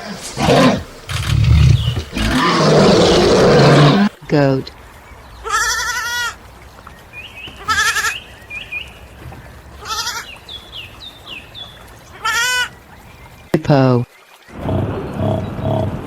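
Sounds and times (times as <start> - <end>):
goat bleating: 5.4 - 6.4, 7.5 - 8.3, 9.8 - 10.3, 12.1 - 12.7.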